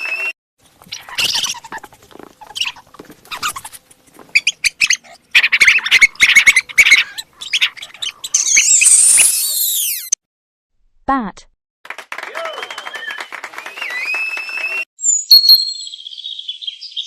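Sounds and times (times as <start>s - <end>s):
mouse squeaking: 0.8s - 10.1s.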